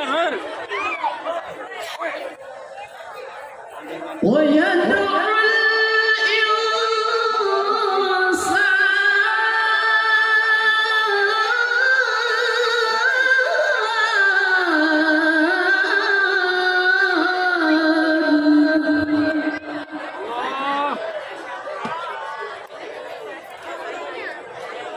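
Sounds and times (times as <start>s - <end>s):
man reciting in melodic chant: 4.2s - 19.9s.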